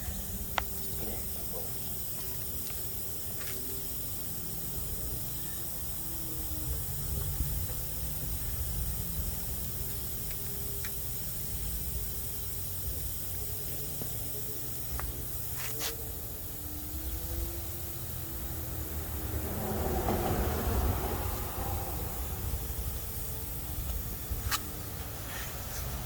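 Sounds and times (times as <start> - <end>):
compressed air hissing: 0.0 - 26.0.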